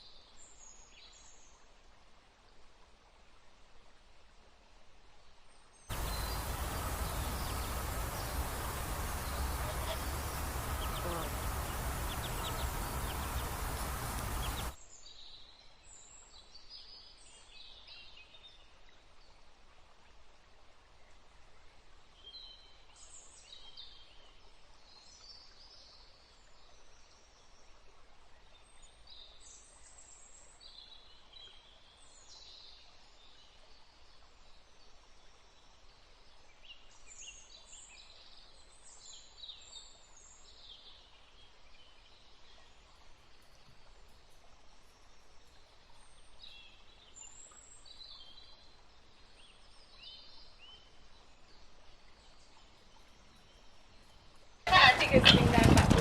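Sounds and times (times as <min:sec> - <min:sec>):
faint high bird chirps: 0:05.9 - 0:14.8.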